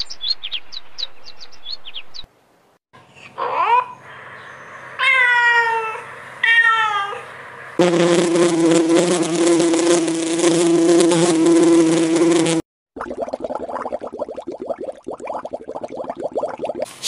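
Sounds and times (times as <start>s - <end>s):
high-pitched animal calls: 3.2s - 7.4s
flying insect buzzing: 7.8s - 12.6s.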